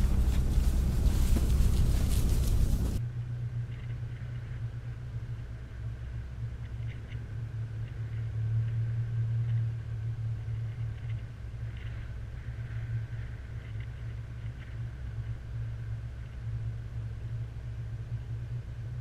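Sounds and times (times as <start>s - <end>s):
engine idling inside cabin: 0.0s - 19.0s.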